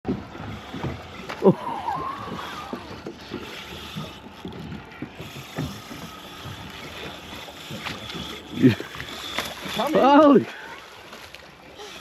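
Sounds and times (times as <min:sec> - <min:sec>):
fishing reel clicking: 0:05.2 - 0:10.6, 0:11.7 - 0:12.0.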